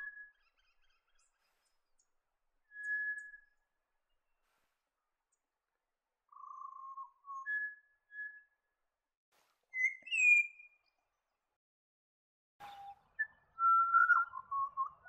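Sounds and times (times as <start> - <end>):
bird singing fluting whistles: 2.7 - 3.6, 12.6 - 15.0.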